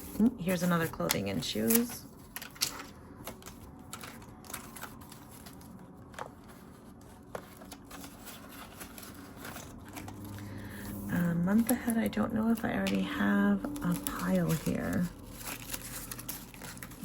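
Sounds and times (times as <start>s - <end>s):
paper rustling and flicking: 0.0s - 10.4s, 13.8s - 17.0s.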